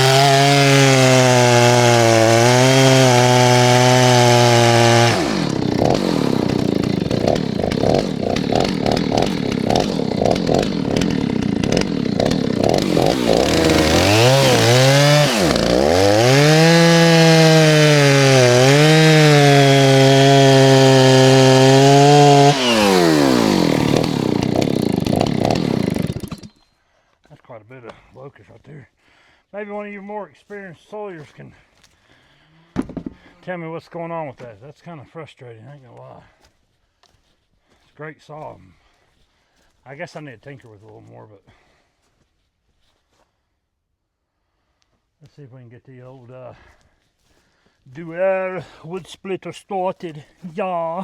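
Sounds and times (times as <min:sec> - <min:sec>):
chainsaw revving: 0:00.0 - 0:26.6.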